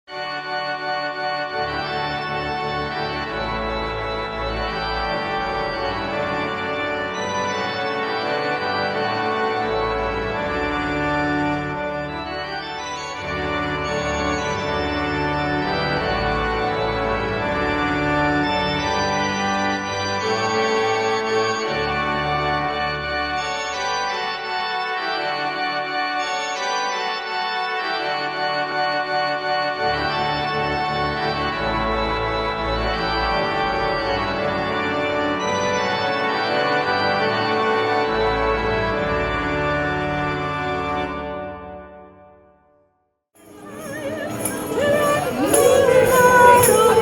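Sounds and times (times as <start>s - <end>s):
organ chords: 0.2s - 24.8s.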